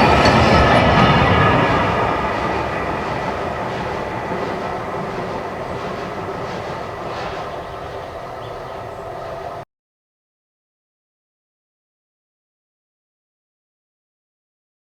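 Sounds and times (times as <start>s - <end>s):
train rolling on rails: 0.0s - 9.6s.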